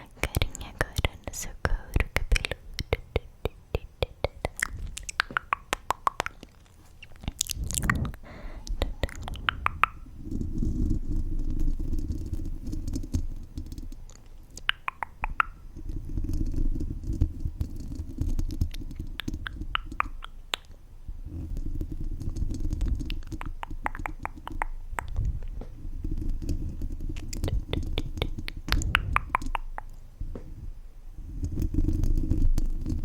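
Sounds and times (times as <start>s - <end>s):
wet mouth clicks: 0.0s - 11.8s, 13.0s - 15.6s, 17.8s - 20.8s, 22.2s - 25.3s, 26.4s - 30.0s
low muffled rumbling: 7.2s - 13.4s, 24.8s - 29.4s.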